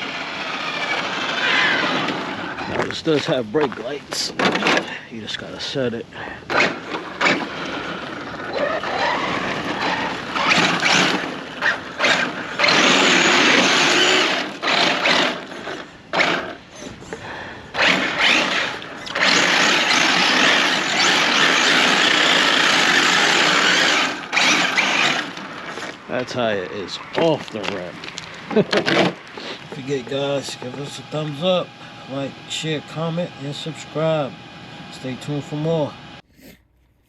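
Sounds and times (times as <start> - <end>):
electric toy car motor whine: 0.0 - 2.9, 6.5 - 26.3, 28.7 - 36.2
tyres rushing against ground: 6.5 - 16.6, 17.7 - 31.4.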